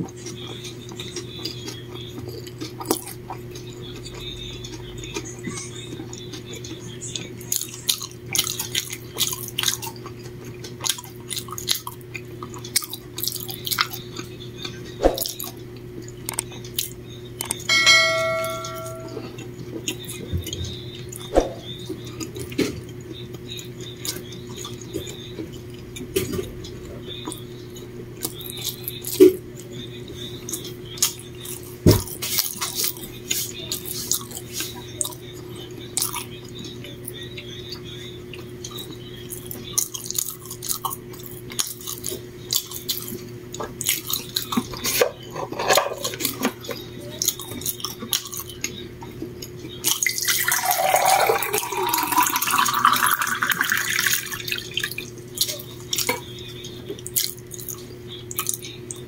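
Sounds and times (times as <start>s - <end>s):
chewing with mouth clicks: 0.0s - 17.7s, 19.2s - 59.0s
bell-like ring: 17.7s - 19.4s.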